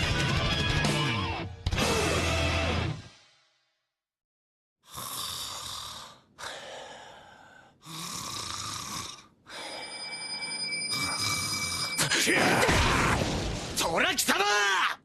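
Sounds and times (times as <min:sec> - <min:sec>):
long noisy breaths or snores: 0:04.8 - 0:12.1.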